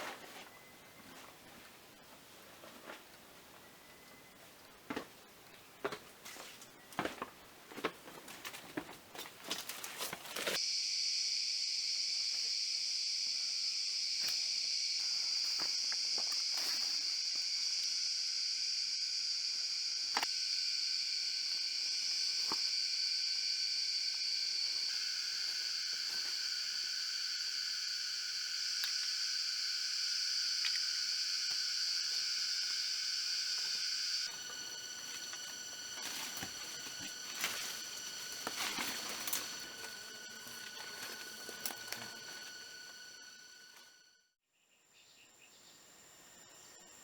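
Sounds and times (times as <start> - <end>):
insects droning: 9.2 - 44.2, 44.9 - 47.0.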